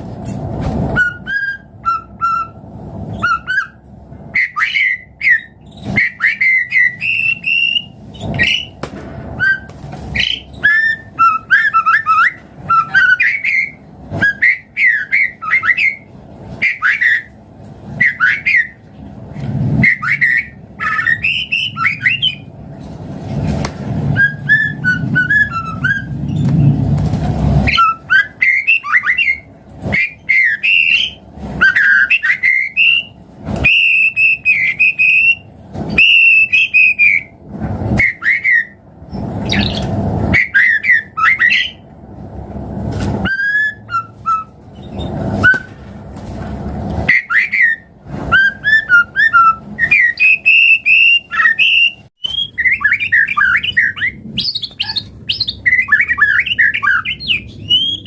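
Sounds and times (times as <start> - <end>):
bird singing varied song: 1.0 - 8.8, 9.4 - 17.4, 18.0 - 18.8, 19.8 - 22.5, 24.2 - 26.8, 27.7 - 37.3, 38.0 - 41.8, 47.1 - 58.0.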